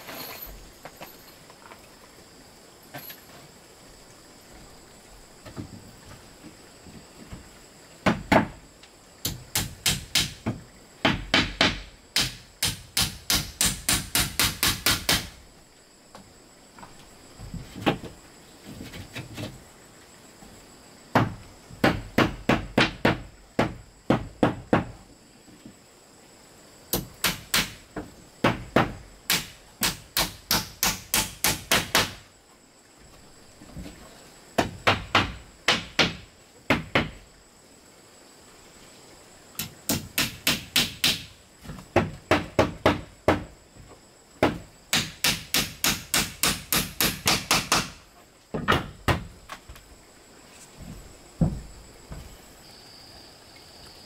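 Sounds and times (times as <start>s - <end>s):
hammer striking wood: 8.0s - 8.6s, 9.2s - 15.4s, 21.1s - 25.0s, 27.0s - 32.2s, 34.6s - 37.2s, 39.6s - 41.3s, 42.0s - 43.5s, 44.4s - 48.0s.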